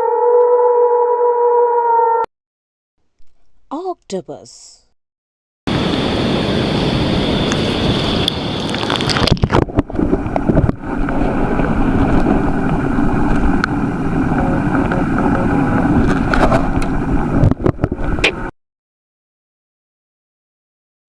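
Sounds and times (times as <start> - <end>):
water noise: 7.2 - 18.5
wind on microphone: 7.7 - 18.4.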